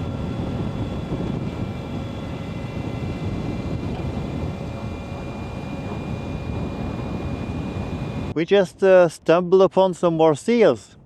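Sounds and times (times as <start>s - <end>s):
faint high whine: 0.0s - 8.4s
road rumble: 0.0s - 8.4s
wind noise: 0.0s - 9.3s.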